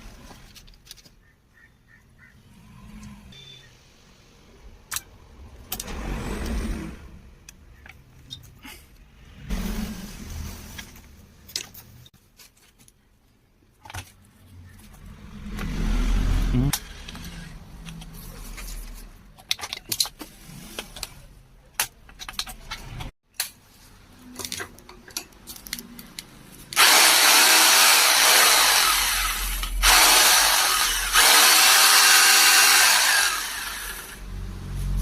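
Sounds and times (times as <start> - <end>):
clicks and knocks of handled parts: 0.2 - 1.2, 16.8 - 23.6, 24.2 - 26.8
power drill running: 26.8 - 34.2.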